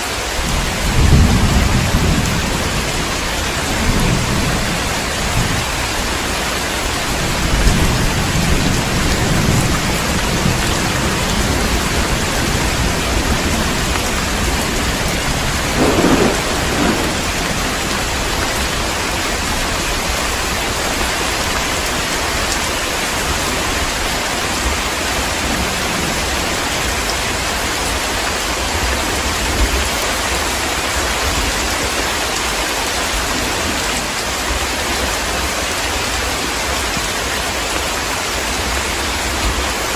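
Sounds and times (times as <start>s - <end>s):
heavy rain falling: 0.0s - 39.9s
low rolling thunder: 0.4s - 22.5s
thunder crack: 7.2s - 19.9s.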